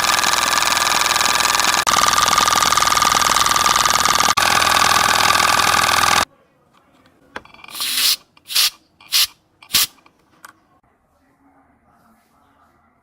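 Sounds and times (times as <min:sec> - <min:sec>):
air compressor motor running: 0:00.0 - 0:06.2, 0:07.6 - 0:10.0
short blasts of hissing air: 0:07.7 - 0:10.0.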